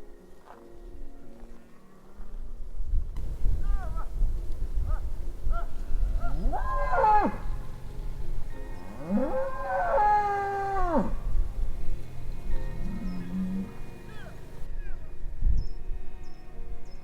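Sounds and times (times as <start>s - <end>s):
cow mooing: 4.9s - 14.7s.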